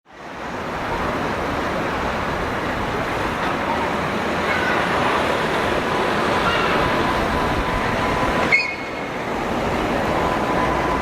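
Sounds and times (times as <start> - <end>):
street traffic: 0.1 - 11.0
tram approaching: 0.2 - 11.0
faint high squealing: 6.4 - 9.2.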